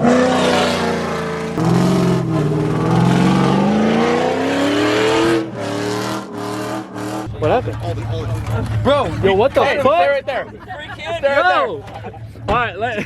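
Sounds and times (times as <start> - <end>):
truck engine revving: 0.0 - 10.4.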